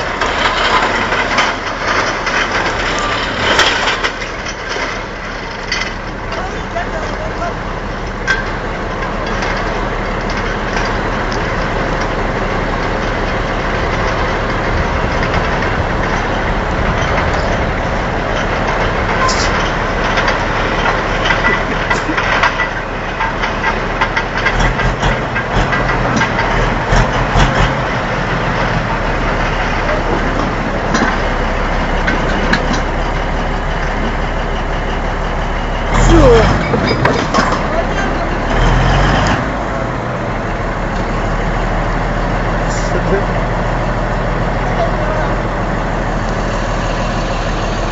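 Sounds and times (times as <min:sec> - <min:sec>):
clanks and knocks: 0:00.0 - 0:07.2, 0:12.8 - 0:28.9, 0:29.6 - 0:33.0, 0:36.5 - 0:38.3
heavy diesel machinery running: 0:00.0 - 0:47.9.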